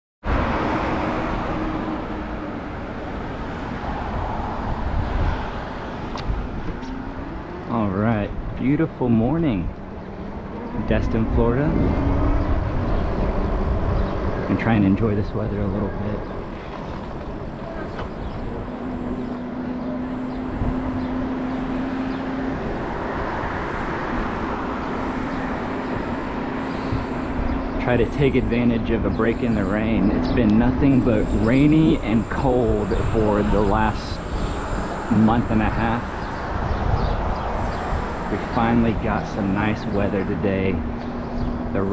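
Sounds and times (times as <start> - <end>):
wind and road noise: 0.2 - 41.9
wind buffeting microphone: 0.3 - 41.9
steady low hum: 24.1 - 41.9.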